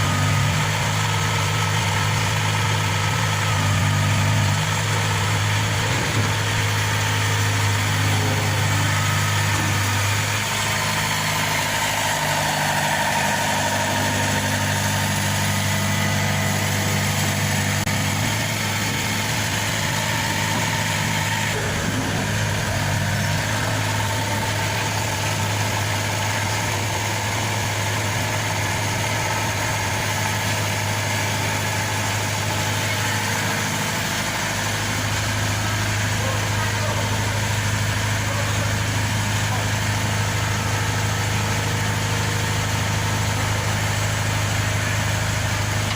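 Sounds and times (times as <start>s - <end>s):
diesel engine idling: 0.0s - 45.9s.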